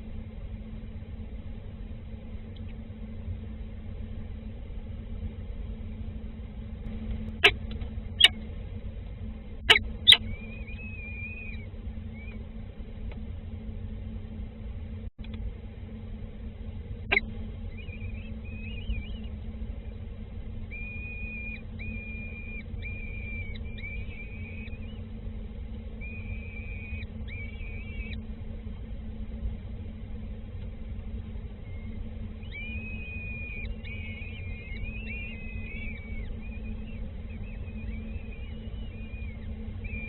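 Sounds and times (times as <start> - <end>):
steady low hum: 0.0 - 40.0
bird whistled calls: 9.7 - 12.4, 17.1 - 19.3, 20.7 - 25.0, 26.0 - 28.2, 31.6 - 40.0.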